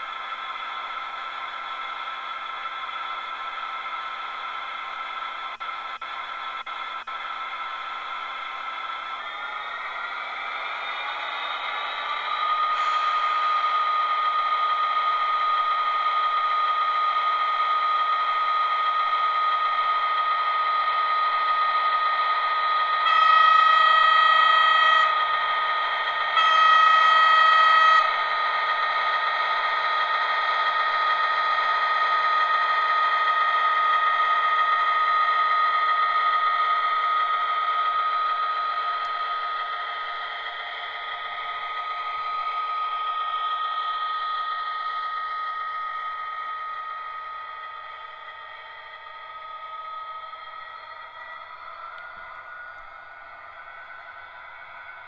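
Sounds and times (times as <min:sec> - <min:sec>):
model locomotive motor whine: 0:00.0 - 0:55.0
locomotive horn blasts: 0:23.1 - 0:25.1, 0:26.4 - 0:27.2.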